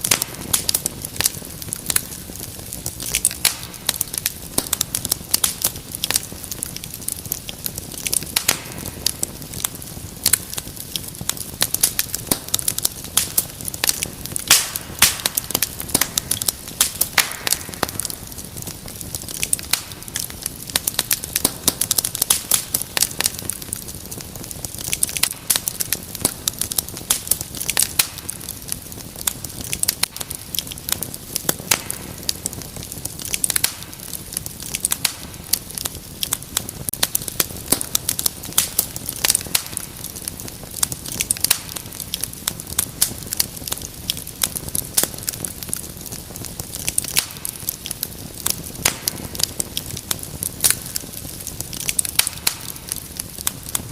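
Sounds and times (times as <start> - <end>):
low hiss of burning: 0.0 - 53.9
wood fire crackling: 0.0 - 53.9.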